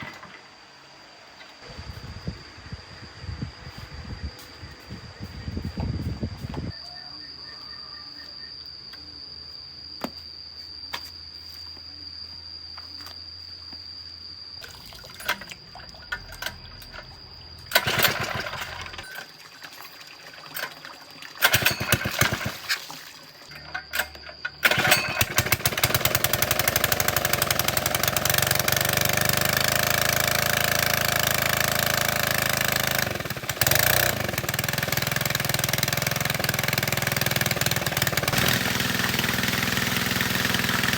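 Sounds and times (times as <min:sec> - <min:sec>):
small petrol engine running: 0:17.7 - 0:19.2, 0:21.4 - 0:22.8, 0:23.5 - 0:40.9.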